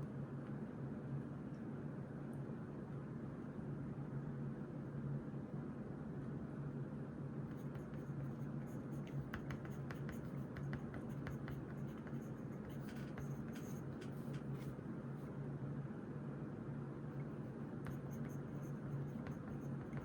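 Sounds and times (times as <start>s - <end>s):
steady low hum: 7.1s - 20.0s
pen scratching on paper: 7.5s - 14.8s, 17.2s - 20.0s.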